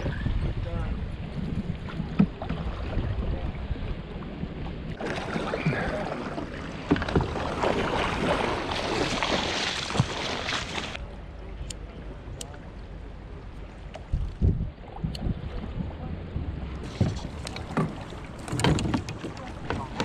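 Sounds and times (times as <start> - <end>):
water splashing: 1.6 - 11.0, 16.7 - 20.0
hollow knocks against hull: 16.9 - 20.0.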